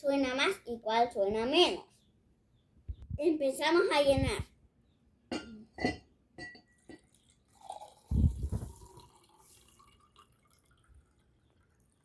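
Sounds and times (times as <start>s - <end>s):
water pouring into a glass: 6.7s - 12.0s.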